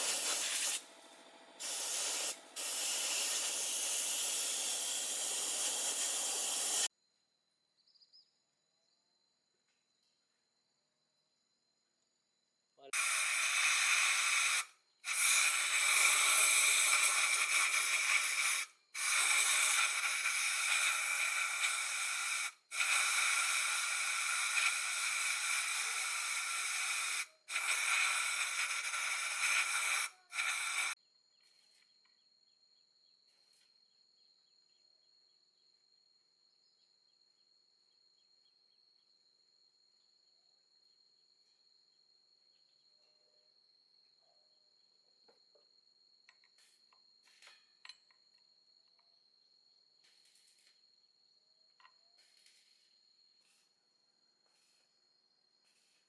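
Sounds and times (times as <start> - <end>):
loud hissing spray: 0.0 - 6.9, 13.0 - 31.0
insects trilling: 12.9 - 31.0.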